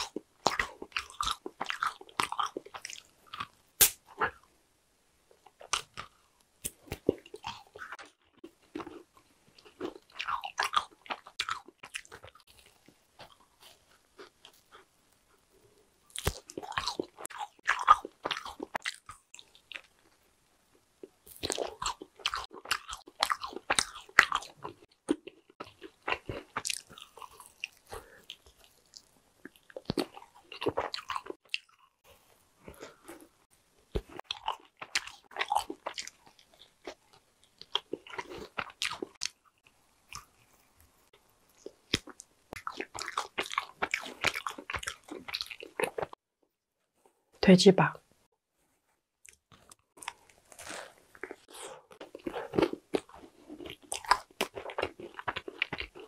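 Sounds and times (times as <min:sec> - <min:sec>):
chewing and wet mouth smacking: 0:33.9 - 0:46.2, 0:49.2 - 0:56.0.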